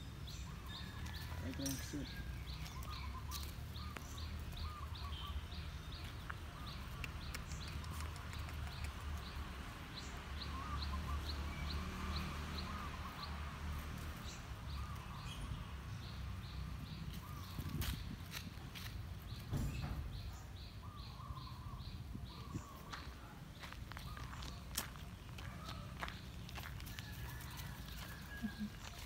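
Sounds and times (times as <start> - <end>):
bird high chirp: 1.6 - 8.4
lower wavering bird calls: 2.5 - 5.7, 10.4 - 11.8.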